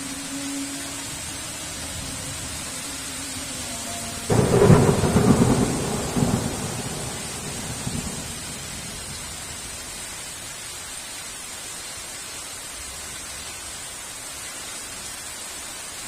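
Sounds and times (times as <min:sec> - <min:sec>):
heavy rain: 0:00.0 - 0:16.0
thunderclap: 0:04.3 - 0:09.6.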